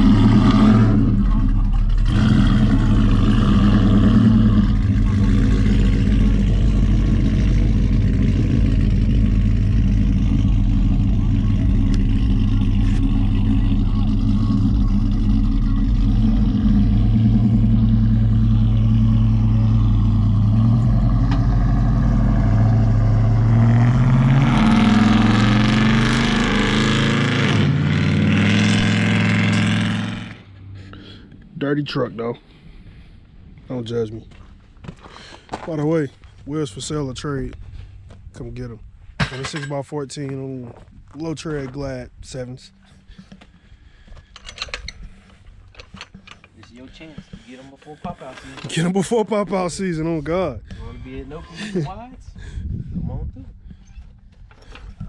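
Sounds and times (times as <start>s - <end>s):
pickup truck engine revving: 0.0s - 31.4s.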